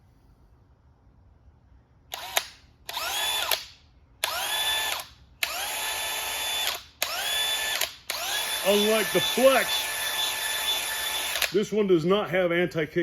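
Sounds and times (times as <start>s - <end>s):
drill spinning with rising whine: 2.1s - 3.6s, 4.2s - 11.5s.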